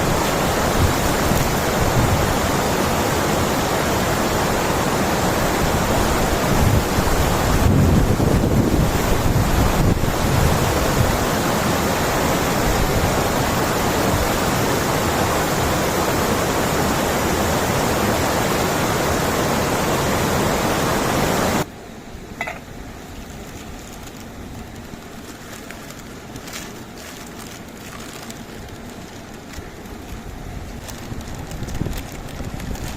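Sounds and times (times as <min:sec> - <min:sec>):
waterfall rushing: 0:00.0 - 0:21.7.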